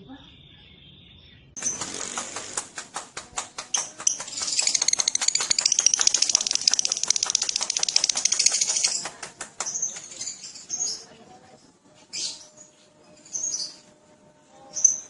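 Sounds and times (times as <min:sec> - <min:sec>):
lovebird chattering trill: 0:03.8 - 0:09.1.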